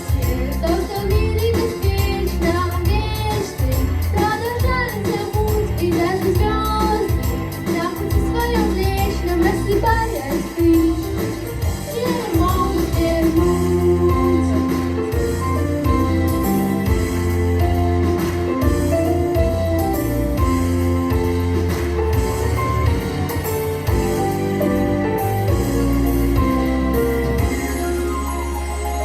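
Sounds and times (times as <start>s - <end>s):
girl singing pop song: 0.0s - 17.1s
backing track with bass line: 0.0s - 29.0s.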